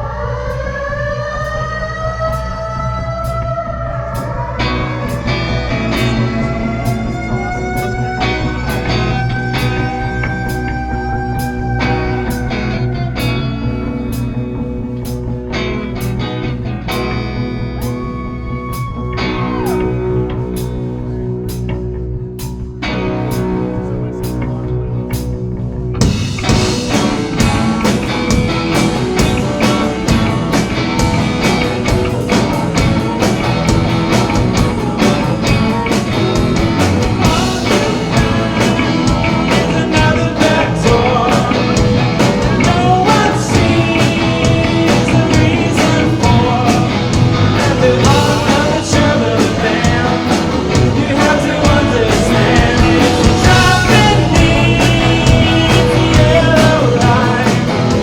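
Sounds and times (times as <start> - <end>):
guitar: 0.0 - 58.0
rock band playing: 4.6 - 58.0
person singing: 37.0 - 58.0.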